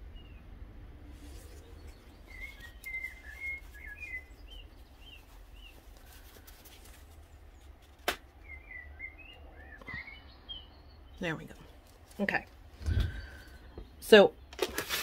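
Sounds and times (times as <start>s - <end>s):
small bird chirping: 1.2s - 11.6s.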